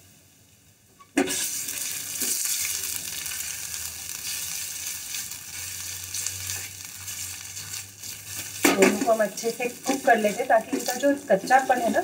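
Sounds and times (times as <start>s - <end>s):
garlic paste sizzling in oil: 0.0s - 12.0s
spatula stirring in saucepan: 4.2s - 12.0s.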